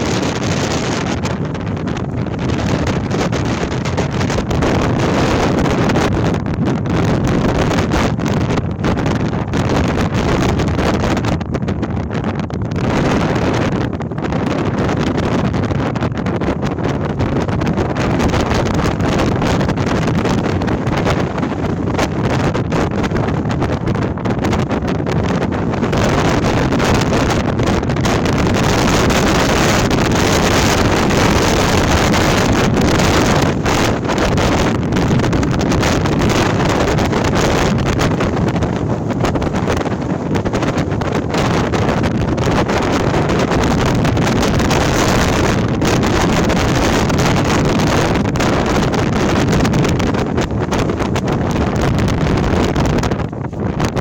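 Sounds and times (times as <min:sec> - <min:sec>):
strong wind blowing: 0:00.0 - 0:54.0
wind noise on microphone: 0:00.0 - 0:54.0
tent fabric fluttering: 0:18.2 - 0:23.5, 0:24.6 - 0:44.2.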